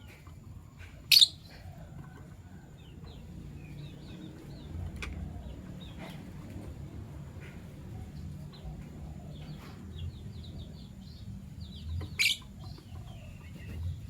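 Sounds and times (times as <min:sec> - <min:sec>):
lovebirds chirping: 0:00.0 - 0:14.0.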